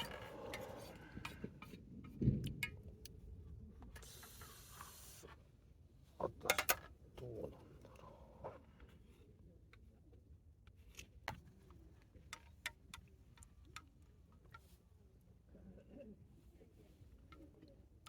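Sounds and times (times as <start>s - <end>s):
objects clicking and knocking: 0.0s - 2.9s.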